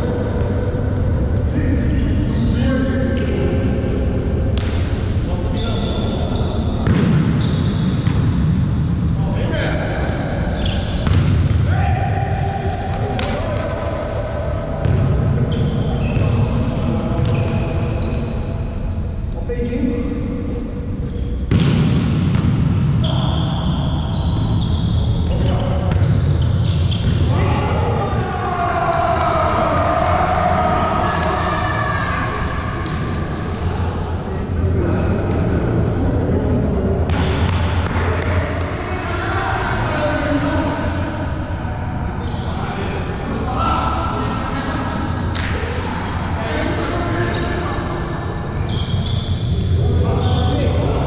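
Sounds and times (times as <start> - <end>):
murmur of voices echoing: 0.0 - 51.0
sneakers squeaking on floor: 4.0 - 4.9, 5.5 - 9.3, 10.3 - 11.7, 14.8 - 19.2, 20.2 - 27.3, 48.4 - 50.6
volleyball hits: 6.8 - 7.4, 11.0 - 11.7, 21.5 - 23.0.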